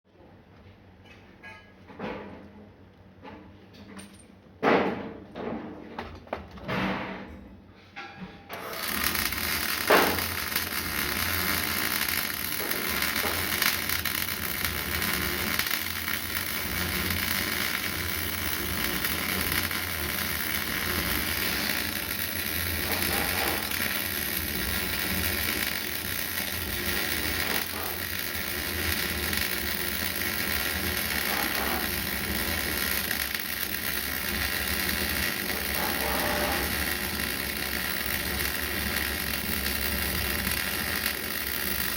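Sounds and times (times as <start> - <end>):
arc welding hiss: 8.6 - 41.9.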